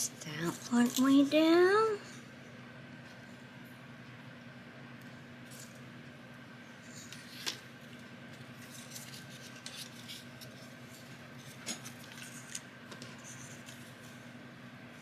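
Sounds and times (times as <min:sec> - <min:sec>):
paper rustling and creasing: 0:08.4 - 0:14.1.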